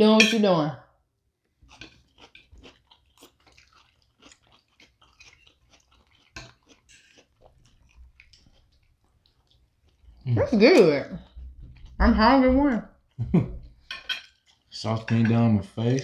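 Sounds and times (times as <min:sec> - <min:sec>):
people chewing food: 0:01.4 - 0:16.0.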